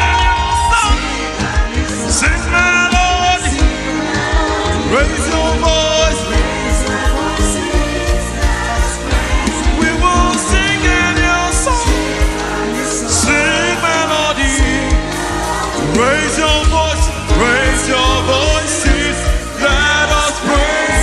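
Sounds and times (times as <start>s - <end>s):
band with drums and bass: 0.0s - 21.0s.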